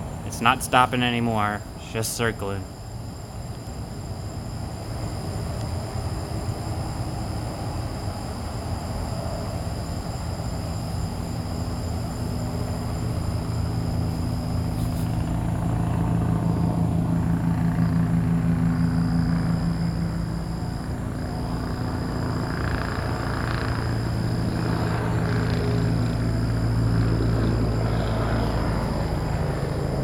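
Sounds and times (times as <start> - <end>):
helicopter rotor and engine rumble: 0.0 - 30.0.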